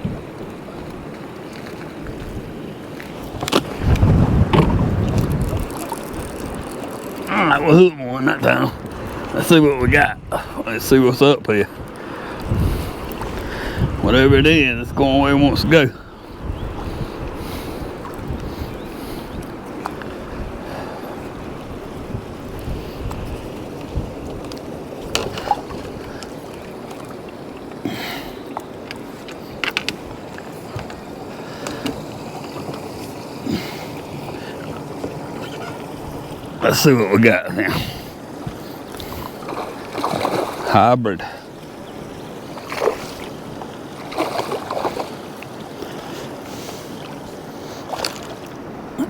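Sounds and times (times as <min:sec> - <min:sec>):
choppy water: 0:00.0 - 0:49.0
wind: 0:00.0 - 0:49.0
strong wind rushing: 0:03.3 - 0:11.0, 0:11.8 - 0:19.6.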